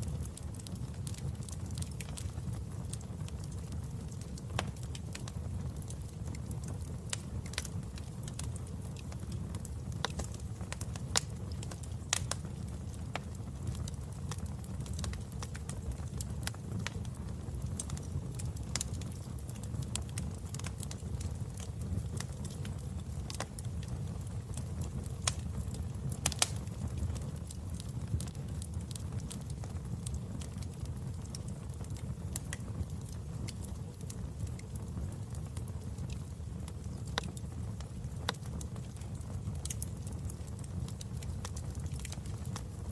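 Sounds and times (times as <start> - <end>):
wood fire crackling and popping: 0.0 - 42.9.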